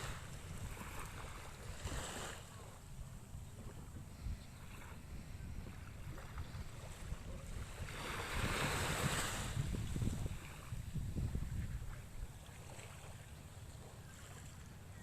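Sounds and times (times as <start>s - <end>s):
wave washing in: 0.0s - 2.7s, 4.1s - 12.9s
wind rumble on microphone: 0.0s - 15.0s.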